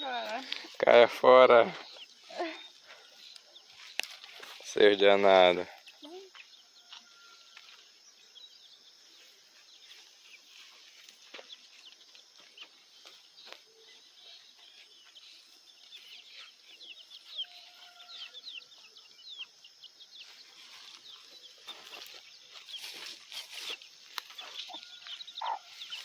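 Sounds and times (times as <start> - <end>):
chicks peeping: 1.6 - 26.0
chickens clucking: 9.5 - 26.0.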